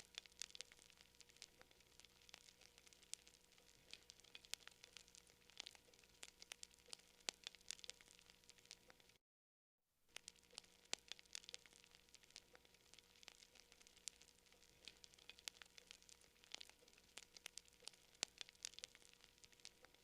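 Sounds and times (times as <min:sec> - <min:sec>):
faint hiss: 0:00.0 - 0:09.2
wood fire crackling: 0:00.0 - 0:09.2, 0:10.1 - 0:20.0.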